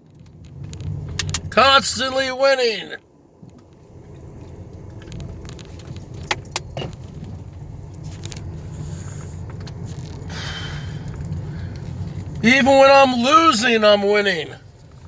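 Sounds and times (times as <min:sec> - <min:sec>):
car rumble inside cabin: 0:00.0 - 0:15.0
keys jingling: 0:05.8 - 0:07.2.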